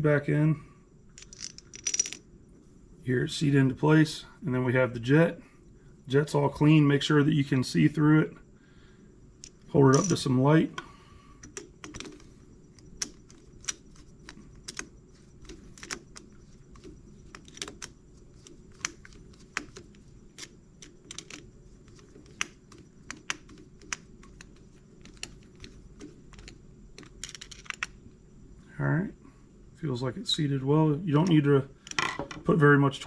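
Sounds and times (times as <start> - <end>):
faint steady hum: 0.0 - 33.0
small parts and tools clicking: 1.1 - 2.2, 9.4 - 10.3, 11.4 - 28.0, 31.2 - 32.4.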